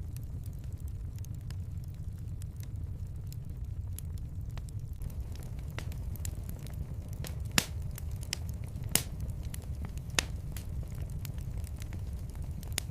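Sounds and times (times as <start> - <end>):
fire crackling: 0.0 - 12.9
low fire rumble: 0.0 - 12.9
sharp pops of fire: 4.0 - 12.9.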